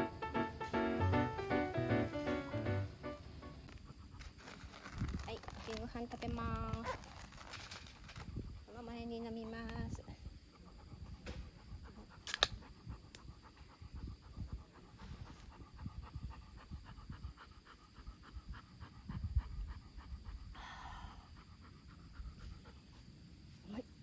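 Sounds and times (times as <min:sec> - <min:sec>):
dog panting rapidly: 0:10.3 - 0:23.2.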